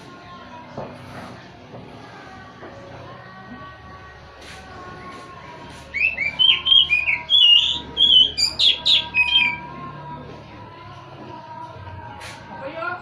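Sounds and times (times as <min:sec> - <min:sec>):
bird singing whistled notes: 0:05.9 - 0:09.7.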